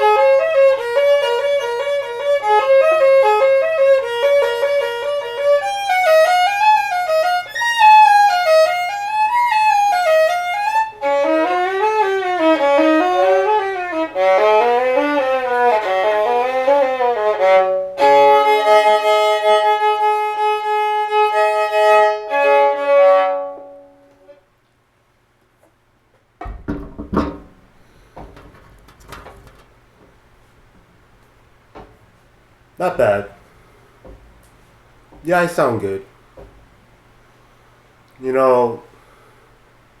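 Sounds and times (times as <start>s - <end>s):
solo violin playing: 0.0s - 24.1s.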